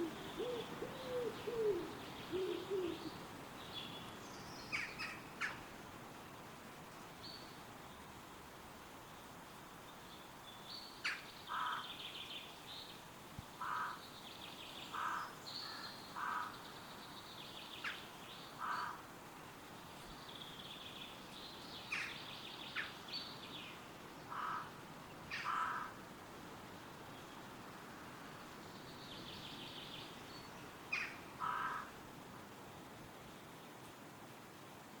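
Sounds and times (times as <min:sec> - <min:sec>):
birds twittering and chirping: 0:00.0 - 0:05.7
wind in trees: 0:00.0 - 0:35.0.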